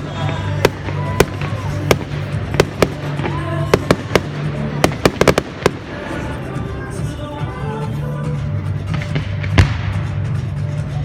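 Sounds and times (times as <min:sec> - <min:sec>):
fireworks bangs: 0:00.0 - 0:06.8, 0:08.9 - 0:10.4
music with low bass: 0:00.0 - 0:11.0.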